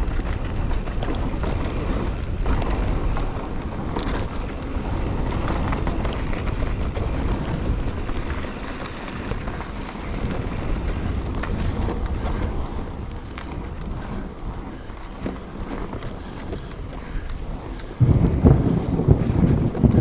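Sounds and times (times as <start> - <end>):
bike rattling over bumps: 0.0 - 20.0
tyres rolling on dirt: 0.0 - 20.0
wind rumbling on microphone: 0.0 - 20.0.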